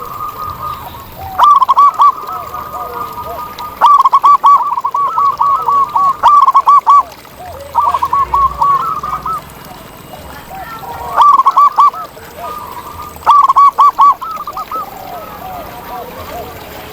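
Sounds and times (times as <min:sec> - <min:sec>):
doves cooing: 0:00.0 - 0:16.9.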